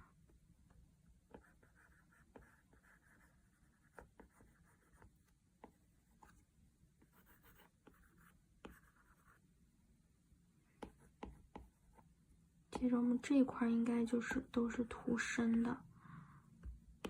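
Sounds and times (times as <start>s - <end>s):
stylus tapping and stroking screen: 0.7s - 9.4s, 10.6s - 12.1s, 12.7s - 15.8s.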